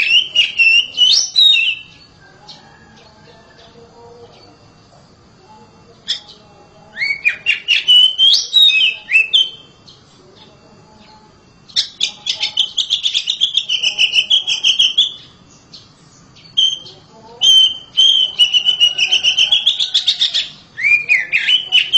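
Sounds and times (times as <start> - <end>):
bird singing whistled notes: 0.0 - 2.1, 6.1 - 10.0, 11.1 - 21.9.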